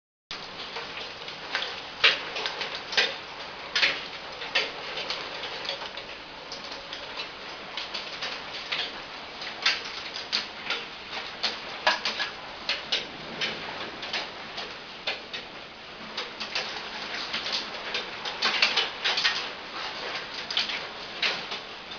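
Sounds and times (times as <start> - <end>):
heavy rain hissing: 11.0 - 16.2.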